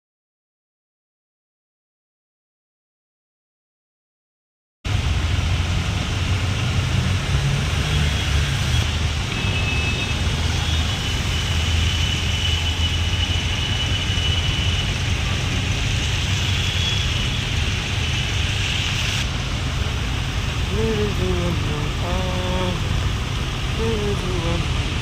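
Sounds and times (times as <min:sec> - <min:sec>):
traffic on a wet road: 0:04.9 - 0:25.0.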